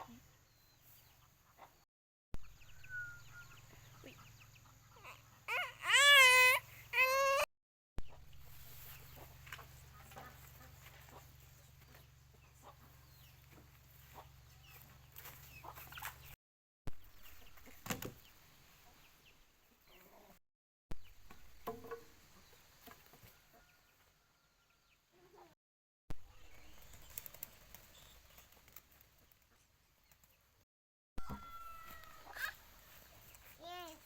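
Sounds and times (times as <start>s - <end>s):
poultry clucking: 1.1s - 1.8s, 2.8s - 6.1s, 8.0s - 16.4s.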